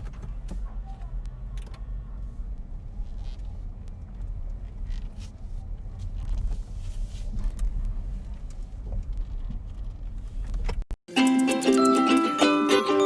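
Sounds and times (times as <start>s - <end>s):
ukulele music: 11.1s - 13.0s.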